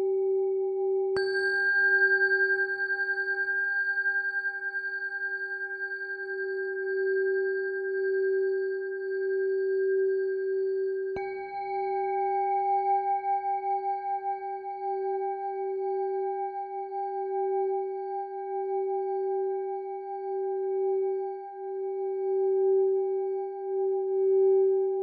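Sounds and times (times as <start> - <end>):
singing bowl ringing: 1.2 - 18.0.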